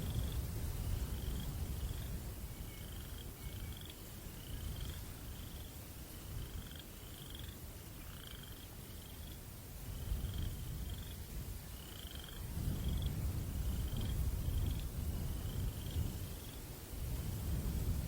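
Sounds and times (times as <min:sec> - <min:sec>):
breeze rumble: 0:00.0 - 0:18.0
crickets chirping: 0:00.0 - 0:18.0.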